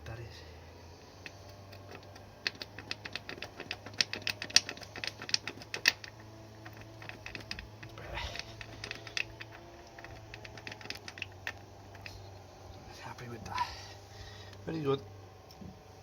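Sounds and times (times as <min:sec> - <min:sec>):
socket ratchet clicking: 0:01.1 - 0:12.3.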